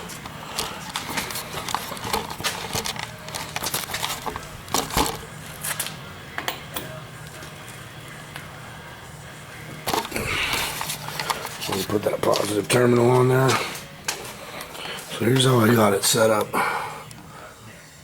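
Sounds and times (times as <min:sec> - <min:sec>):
clicks and knocks of battery leads: 0:00.6 - 0:05.2.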